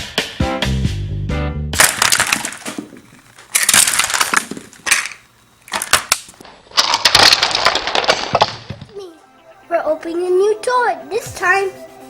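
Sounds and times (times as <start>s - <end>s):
crunching and rustling handling: 1.8s - 8.9s.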